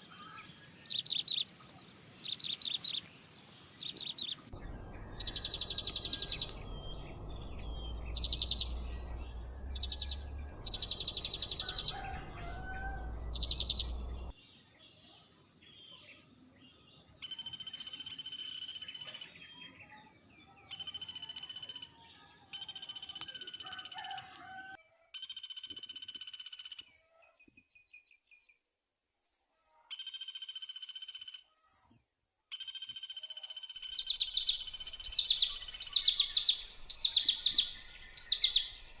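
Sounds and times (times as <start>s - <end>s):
small birds chirping: 0.0s - 24.6s, 32.6s - 39.0s
steady high thin tone: 4.6s - 14.3s.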